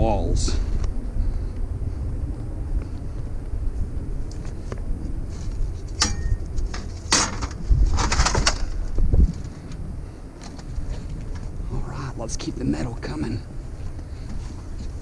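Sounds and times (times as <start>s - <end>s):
low rumble: 0.0s - 15.0s
sharp metal strikes: 6.0s - 6.4s
scrap metal clanking: 6.0s - 8.7s.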